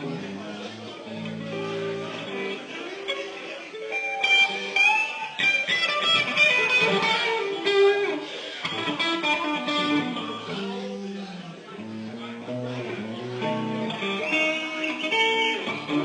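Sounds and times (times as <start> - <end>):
electric guitar lead lines: 0.0 - 16.0.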